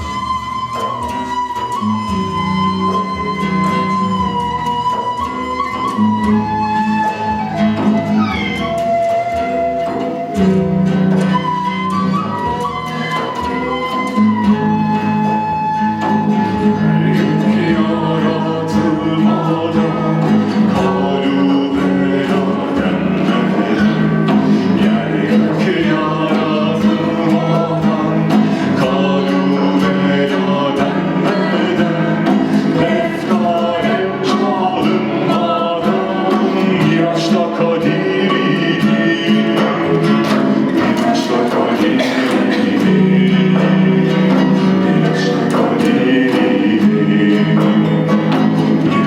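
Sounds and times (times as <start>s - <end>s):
plucked notes: 0.0s - 49.0s
person singing: 7.1s - 11.6s, 16.0s - 49.0s.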